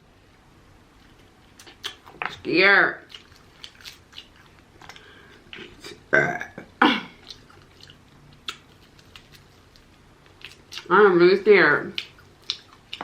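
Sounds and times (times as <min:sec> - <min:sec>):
mouth and eating clicks: 0:01.0 - 0:02.5, 0:03.1 - 0:05.8, 0:07.2 - 0:10.9, 0:11.9 - 0:13.0
person burping: 0:05.8 - 0:07.2.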